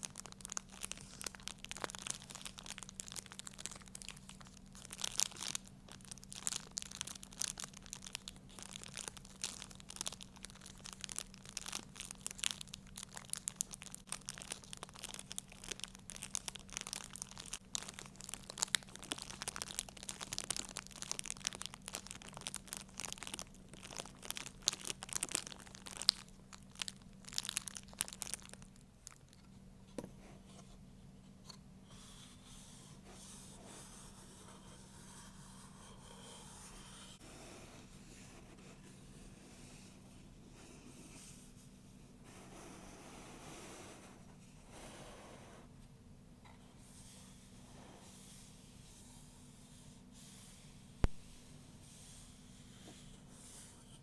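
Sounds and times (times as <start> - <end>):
crinkly material crackling: 0.0 - 29.6.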